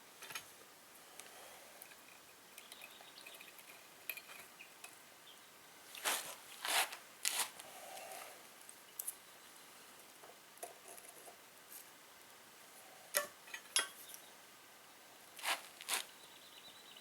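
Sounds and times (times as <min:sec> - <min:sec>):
short rasping scrapes: 0:06.0 - 0:07.6, 0:15.4 - 0:16.1.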